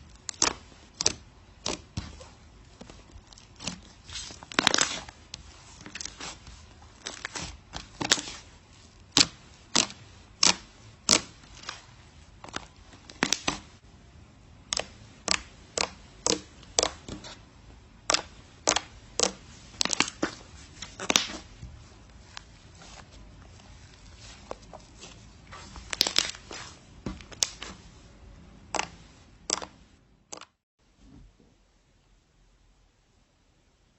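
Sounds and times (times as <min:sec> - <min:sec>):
slime popping and crackling: 0:00.1 - 0:02.3, 0:03.1 - 0:05.2, 0:05.9 - 0:13.7, 0:14.6 - 0:17.4, 0:18.0 - 0:20.3, 0:20.9 - 0:21.5, 0:25.8 - 0:27.7, 0:28.7 - 0:30.6.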